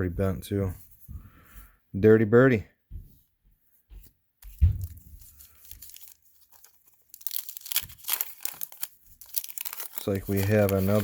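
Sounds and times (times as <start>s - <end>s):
wrapper being torn open: 5.2s - 11.0s.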